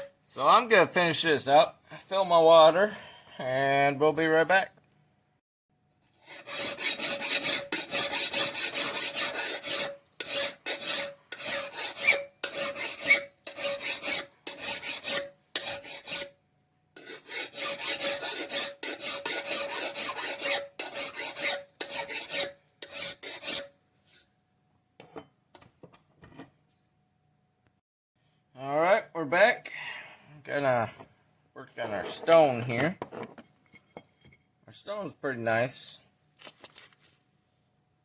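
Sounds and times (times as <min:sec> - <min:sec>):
metal file rasping on axe edge: 0:06.2 - 0:16.4, 0:17.0 - 0:24.3.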